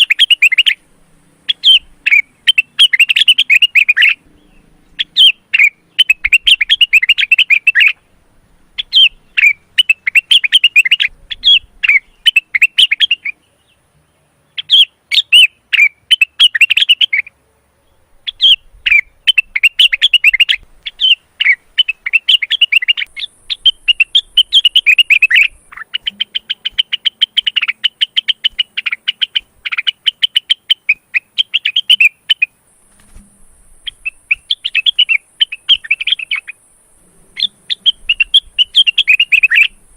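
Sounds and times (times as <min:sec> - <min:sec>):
bird singing rapid chattering song: 0:00.0 - 0:39.9.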